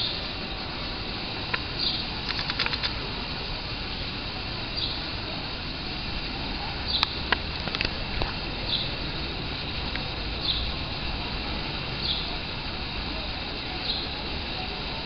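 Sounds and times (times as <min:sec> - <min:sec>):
steady background hum: 0:00.0 - 0:15.0
sharp clicks: 0:01.5 - 0:03.0
bird chirping: 0:01.8 - 0:02.9, 0:04.7 - 0:05.1, 0:06.8 - 0:07.2, 0:08.6 - 0:09.1, 0:10.4 - 0:10.8, 0:12.0 - 0:12.4, 0:13.8 - 0:14.2.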